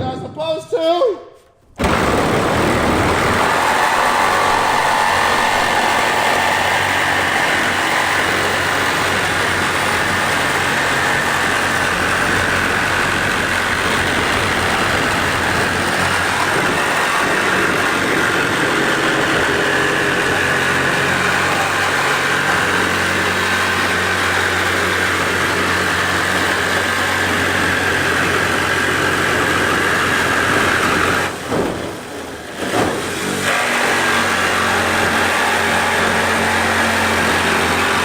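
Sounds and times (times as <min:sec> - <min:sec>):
motor humming: 0:01.8 - 0:38.0.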